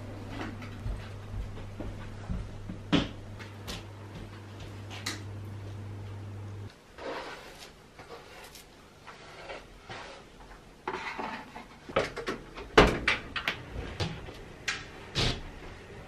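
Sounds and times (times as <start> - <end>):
knocks and clatters of objects: 10.8 - 14.4.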